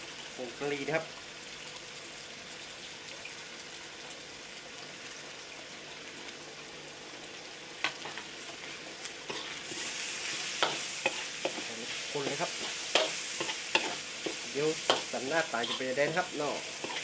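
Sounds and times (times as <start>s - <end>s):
pork sizzling in a wok: 0.0s - 17.0s
metal spatula scraping a wok: 8.1s - 17.0s.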